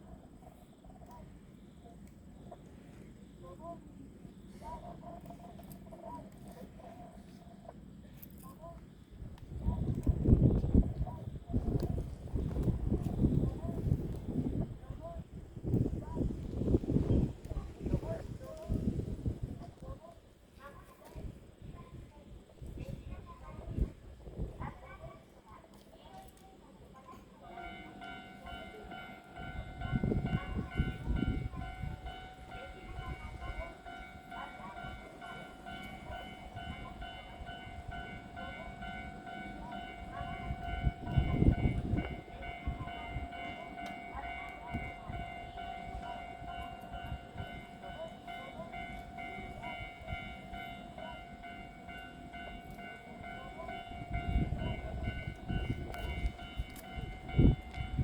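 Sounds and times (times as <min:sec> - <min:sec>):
electric train humming: 0:27.2 - 0:58.0.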